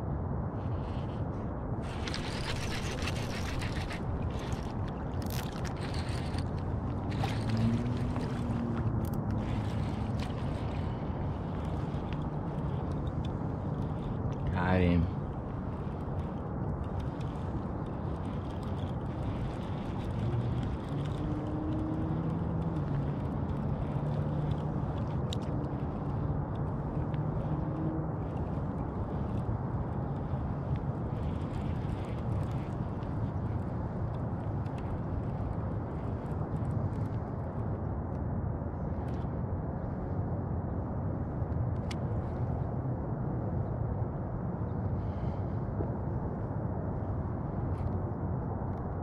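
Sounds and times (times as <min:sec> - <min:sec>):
wind rumble on microphone: 0:00.0 - 0:49.0
light crackles: 0:00.6 - 0:37.8
water lapping: 0:01.8 - 0:14.2.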